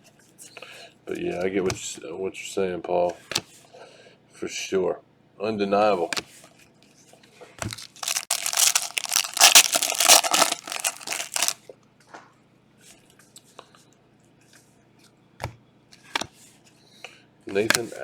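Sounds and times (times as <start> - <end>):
wrapper tearing and crinkling: 7.7 - 11.6.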